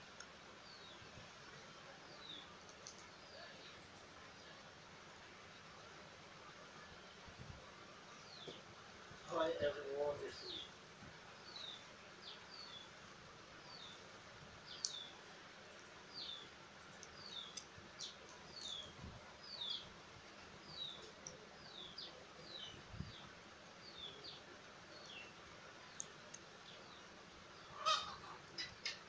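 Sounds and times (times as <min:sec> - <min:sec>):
outdoor background noise: 0:00.0 - 0:29.0
small bird chirping: 0:11.4 - 0:12.9, 0:14.6 - 0:15.2, 0:16.1 - 0:19.9, 0:20.6 - 0:29.0.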